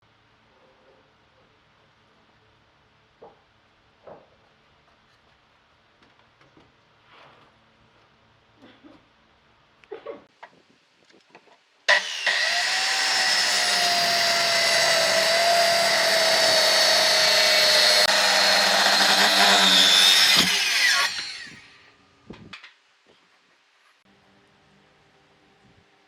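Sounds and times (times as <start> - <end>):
power tool motor whining: 11.9 - 21.9.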